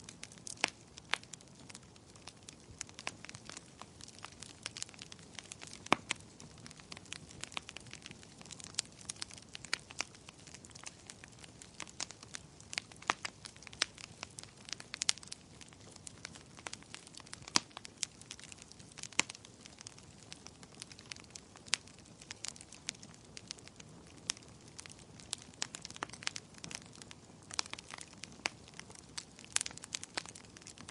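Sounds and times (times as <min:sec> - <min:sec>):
fire crackling and popping: 0:00.0 - 0:30.9.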